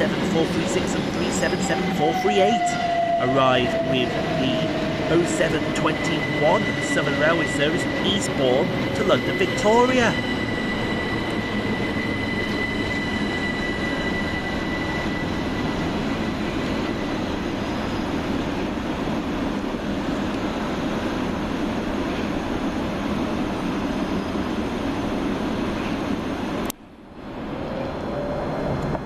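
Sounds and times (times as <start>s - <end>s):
high wheel squeal: 0.0s - 18.3s
train wheels rumbling on rail: 0.0s - 29.0s.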